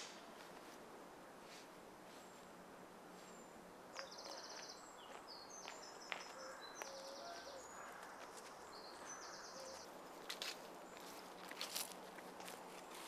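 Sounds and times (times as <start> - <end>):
birds chirping and trilling: 3.2 - 12.0.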